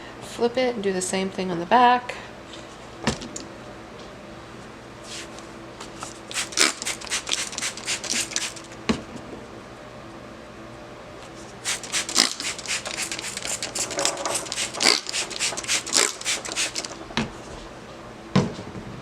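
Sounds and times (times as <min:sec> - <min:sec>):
spray bottle squirting: 0:06.3 - 0:08.8, 0:11.6 - 0:17.0.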